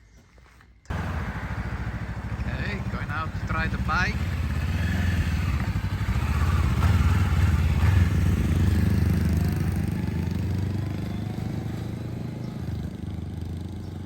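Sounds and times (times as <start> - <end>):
motorcycle engine pulling away: 0.9 - 14.0.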